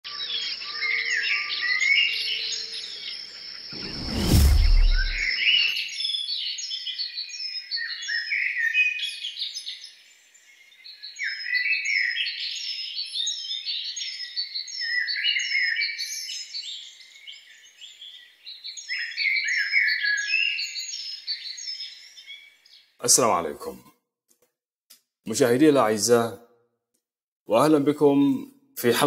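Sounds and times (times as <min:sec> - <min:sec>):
songbirds chirping and twittering: 0:00.1 - 0:23.9
deep boom: 0:03.8 - 0:05.3.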